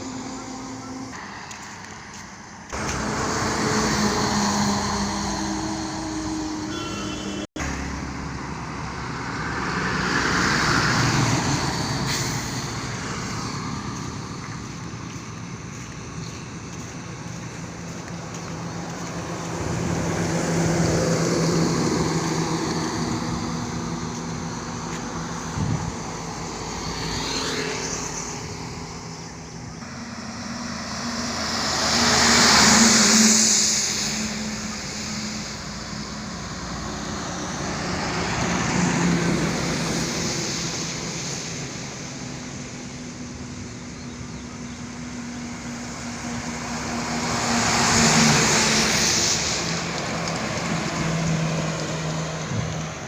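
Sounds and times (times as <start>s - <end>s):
road vehicles passing: 0.0s - 53.0s
tyre and wind noise rush: 25.4s - 26.8s.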